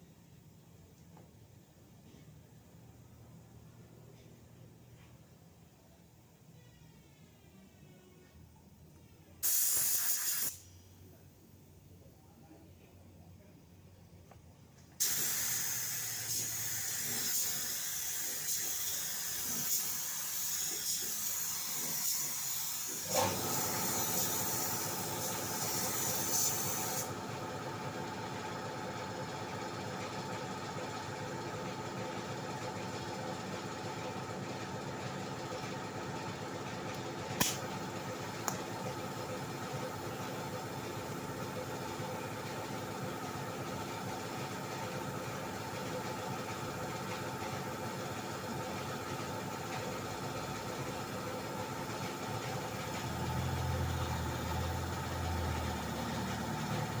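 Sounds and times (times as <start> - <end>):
sharp hissing clicks: 37.4 - 37.7.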